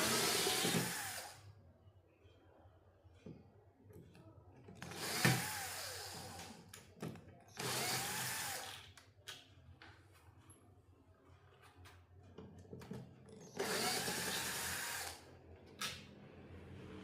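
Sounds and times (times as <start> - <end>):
small power tool whirring: 0.0 - 1.4, 4.8 - 6.5, 7.6 - 8.8, 13.4 - 15.2.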